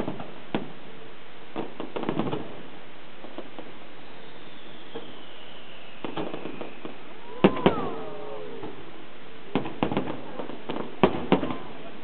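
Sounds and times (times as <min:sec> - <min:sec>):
fireworks shells bursting: 0:03.2 - 0:11.7.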